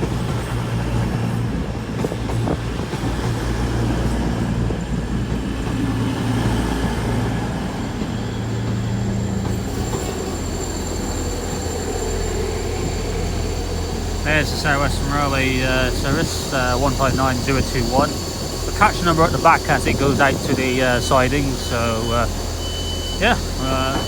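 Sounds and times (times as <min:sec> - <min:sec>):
diesel train engines throbbing: 0:00.0 - 0:24.0
faint high whine: 0:14.0 - 0:24.0.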